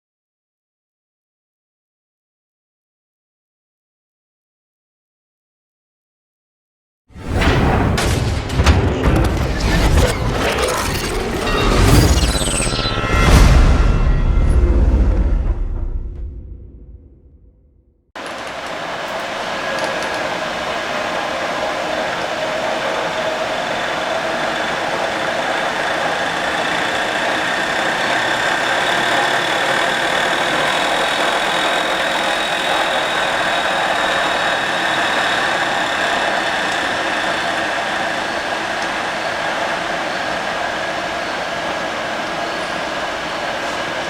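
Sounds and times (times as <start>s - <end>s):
milling machine whine: 18.2s - 44.0s.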